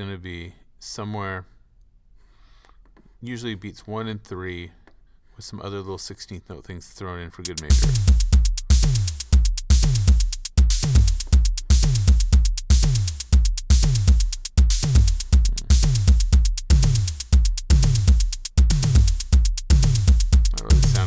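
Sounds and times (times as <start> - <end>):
drum machine beat: 7.5 - 21.0.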